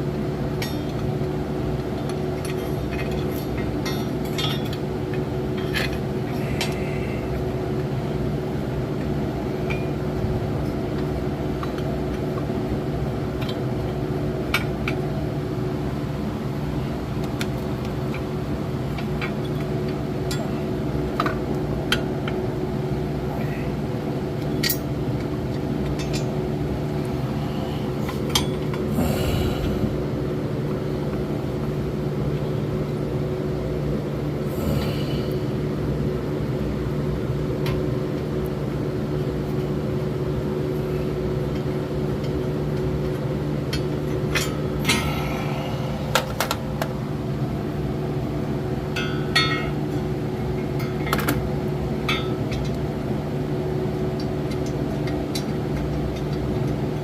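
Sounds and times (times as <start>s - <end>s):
low hum: 25.9s - 31.4s, 34.3s - 35.8s, 44.6s - 47.7s.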